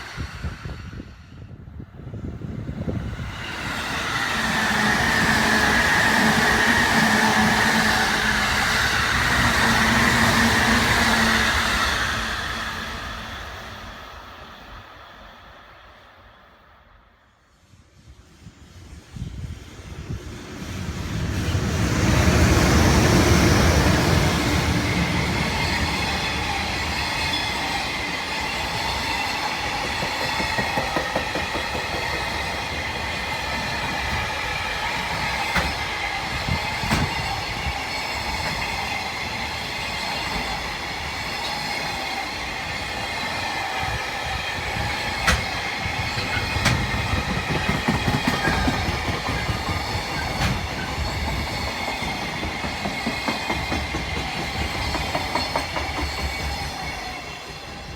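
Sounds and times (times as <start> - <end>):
electric train passing: 0.0 - 57.9
wheel-on-rail clickety-clack: 29.6 - 34.3, 35.1 - 35.9, 45.2 - 56.8.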